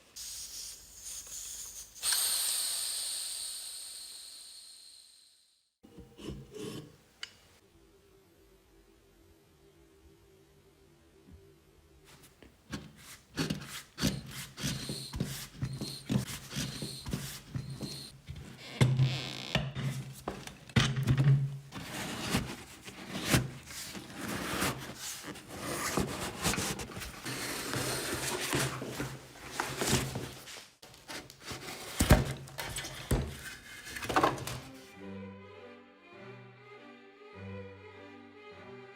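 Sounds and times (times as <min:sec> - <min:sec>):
workshop knocks and scraping: 0:12.7 - 0:34.8.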